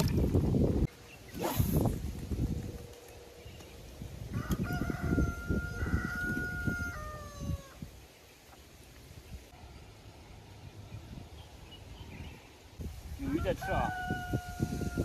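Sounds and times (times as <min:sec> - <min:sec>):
wind buffeting microphone: 0:00.0 - 0:08.0, 0:10.6 - 0:15.0
rooster crowing: 0:04.3 - 0:07.8, 0:13.3 - 0:15.0.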